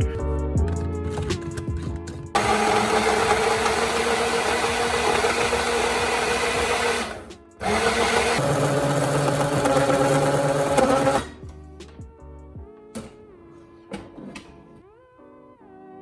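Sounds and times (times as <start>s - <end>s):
electric blender motor running: 2.4s - 11.4s.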